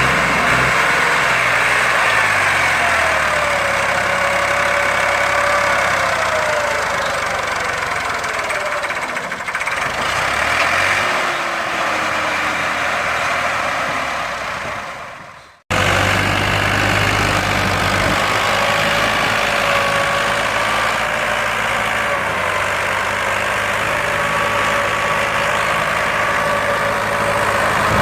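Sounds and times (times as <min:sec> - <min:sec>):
tractor diesel engine running: 0:00.0 - 0:28.0
whining tone dropping in pitch: 0:24.8 - 0:28.0.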